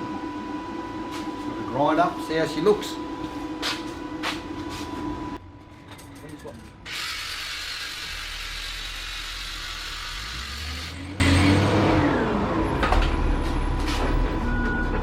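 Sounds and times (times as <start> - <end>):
angle grinder grinding steel: 6.9 - 11.5.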